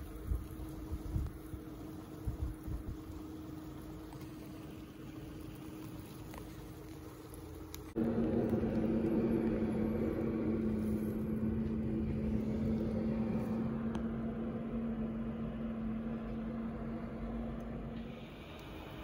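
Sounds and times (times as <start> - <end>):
mechanical hum: 0.0 - 19.0
low rumble: 7.8 - 19.0.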